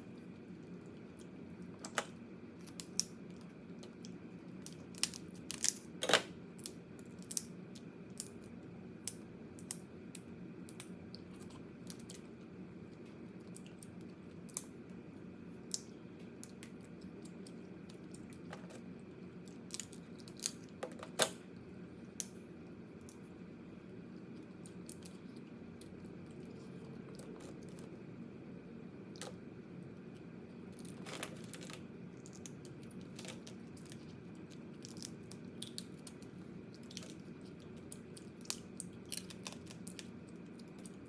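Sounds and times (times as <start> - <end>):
steady low hum: 0.0 - 41.0
crab shell cracking and chewing: 0.3 - 15.0, 15.6 - 21.4, 24.1 - 28.0, 29.1 - 41.0.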